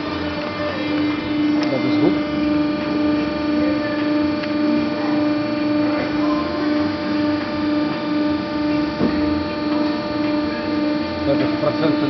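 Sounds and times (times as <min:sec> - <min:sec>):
hydraulic pump humming: 0:00.0 - 0:12.0.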